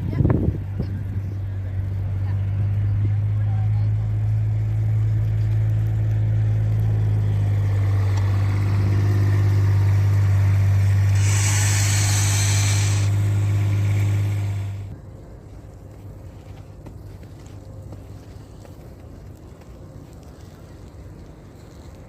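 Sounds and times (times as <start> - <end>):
vehicle engine humming: 0.0 - 22.0
hiss: 8.0 - 14.9.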